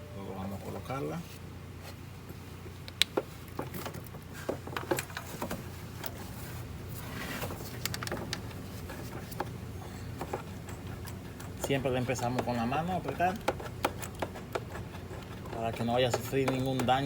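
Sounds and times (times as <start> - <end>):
steady low hum: 0.0 - 17.0
light clicks and knocks of tools: 2.8 - 6.2, 7.7 - 17.0.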